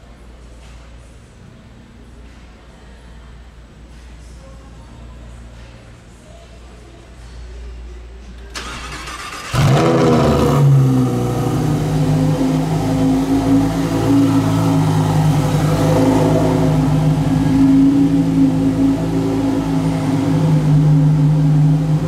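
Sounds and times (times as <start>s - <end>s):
sports car engine starting and idling: 8.5s - 22.0s.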